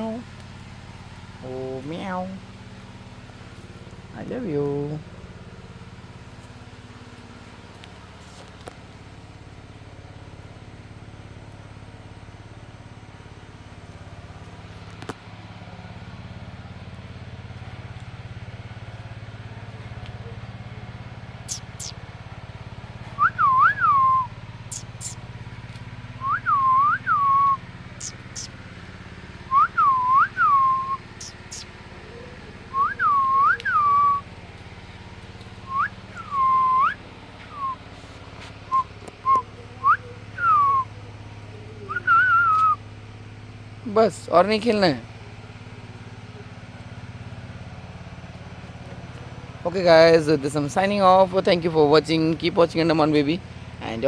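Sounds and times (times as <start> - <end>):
steady low hum: 0.0 - 54.0
very high ticks: 21.5 - 22.0, 24.7 - 25.3, 28.0 - 28.6
whistled two-note call: 21.5 - 22.0, 23.2 - 25.2, 26.2 - 28.5, 29.5 - 31.7, 32.7 - 34.2, 35.6 - 37.8, 38.7 - 40.9, 41.8 - 42.8.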